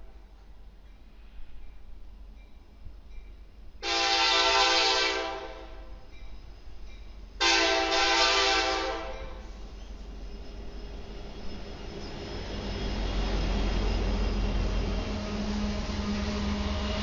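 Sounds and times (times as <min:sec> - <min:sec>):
low rumble of train: 0:00.0 - 0:17.0
locomotive air horn blasts: 0:03.8 - 0:06.0, 0:07.4 - 0:09.5.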